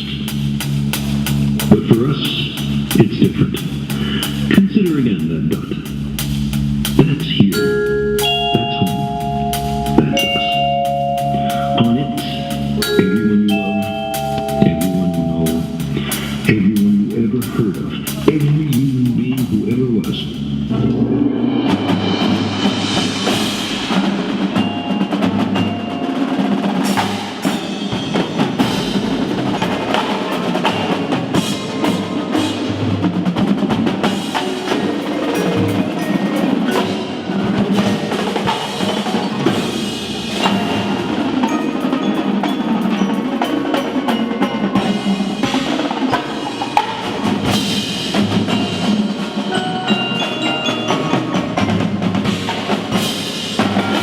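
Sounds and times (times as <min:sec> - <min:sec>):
drum strokes and rolls: 0:00.0 - 0:54.0
marimba and glockenspiel notes: 0:05.9 - 0:16.8, 0:21.5 - 0:54.0.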